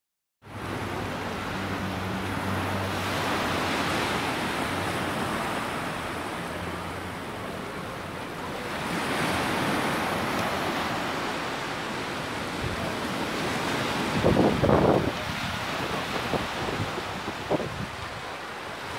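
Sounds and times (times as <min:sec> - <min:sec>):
surf breaking on beach: 0:00.5 - 0:18.9
wind buffeting microphone: 0:13.9 - 0:18.3.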